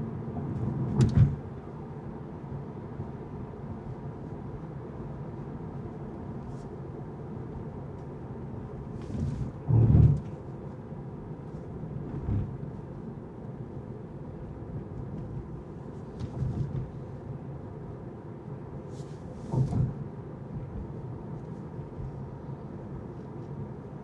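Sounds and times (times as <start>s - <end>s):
car road rumble: 7.4s - 18.0s, 18.9s - 23.5s.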